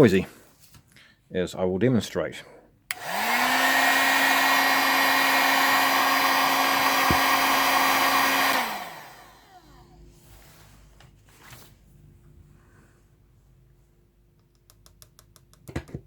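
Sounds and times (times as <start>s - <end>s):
heat gun blowing: 2.9s - 9.8s
fan winding down: 2.9s - 10.0s.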